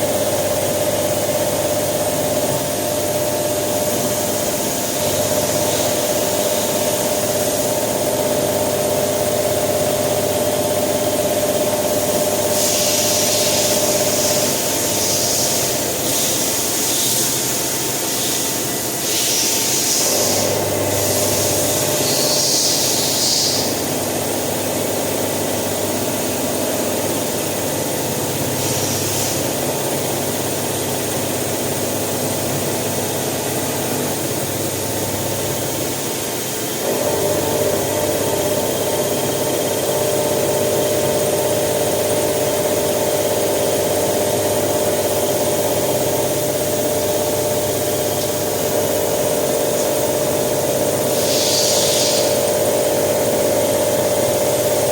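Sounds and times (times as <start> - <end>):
machining centre cutting steel: 12.0 - 24.6
brief hissing: 51.1 - 52.4.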